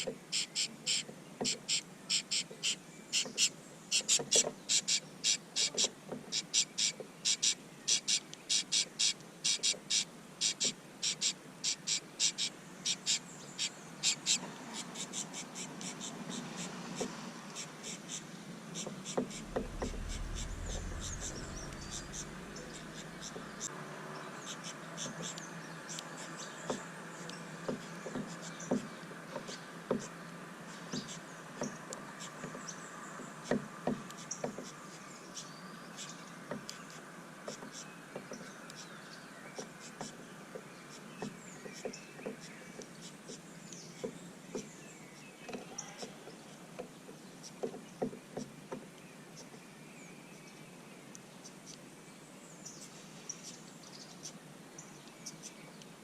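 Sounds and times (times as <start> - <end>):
small birds chirping: 0.0 - 56.0
steady high buzz: 19.3 - 23.7.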